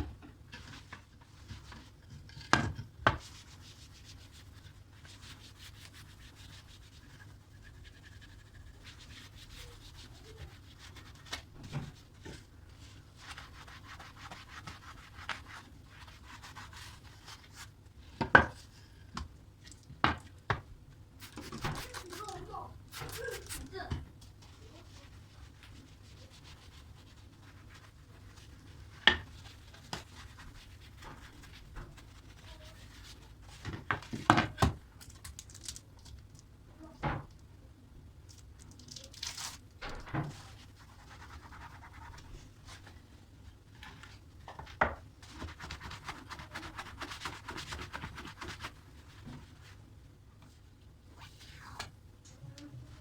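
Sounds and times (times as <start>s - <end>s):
rubbing and scrubbing surface: 3.2s - 17.8s, 21.2s - 23.9s, 24.5s - 33.7s, 40.2s - 43.0s, 43.8s - 49.8s.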